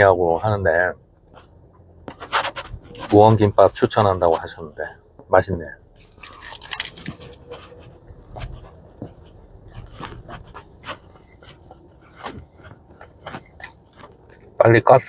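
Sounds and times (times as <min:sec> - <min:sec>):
person chewing food: 0:05.9 - 0:14.6.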